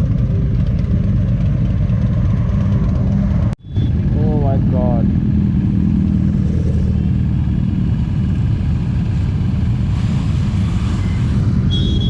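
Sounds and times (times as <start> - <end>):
motorcycle engine rumble: 0.0 - 12.0.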